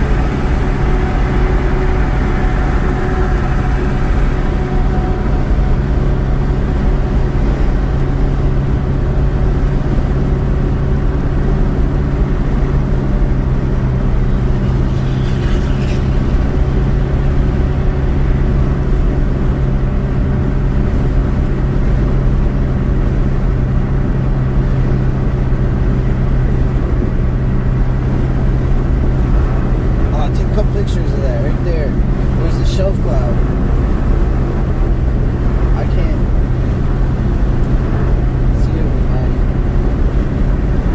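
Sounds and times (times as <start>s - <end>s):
car engine and road noise: 0.0s - 40.9s
short bright whoosh: 13.6s - 18.6s.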